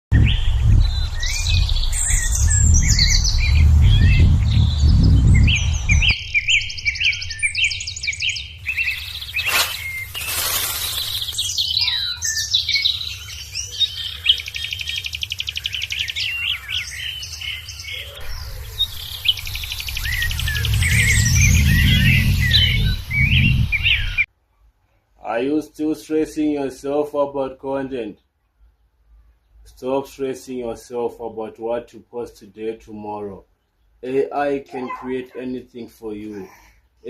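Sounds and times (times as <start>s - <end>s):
birds chirping and trilling: 0.1s - 24.3s, 33.0s - 37.0s
low rumble: 18.2s - 24.3s.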